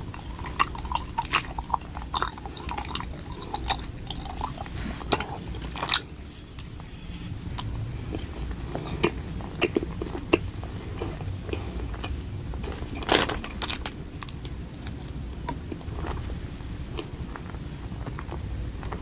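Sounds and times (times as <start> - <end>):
person chewing crunchy food: 0.0 - 19.0.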